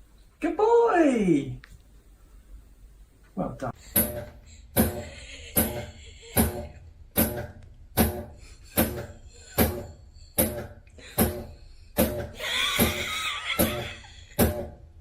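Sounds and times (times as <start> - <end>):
steady drum beat: 3.9 - 14.7.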